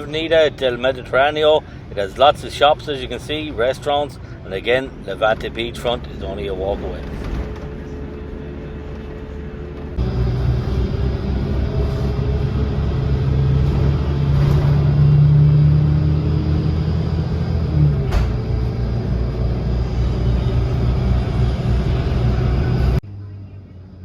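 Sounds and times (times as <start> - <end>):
bus engine and road noise: 0.0 - 24.0.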